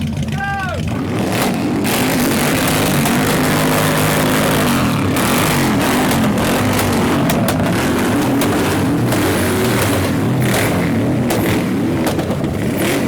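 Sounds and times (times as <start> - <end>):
engines revving through loud exhausts: 0.0 - 13.0
exhaust cracks: 0.0 - 13.0.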